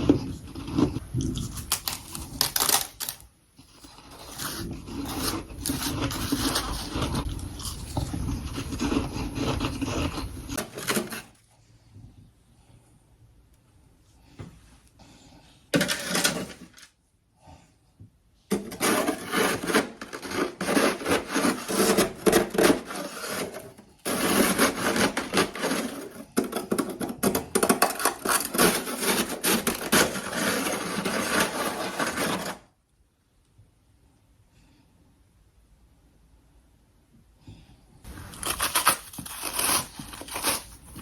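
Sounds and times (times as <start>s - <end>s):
chewing frost crunching: 0.3s - 10.6s.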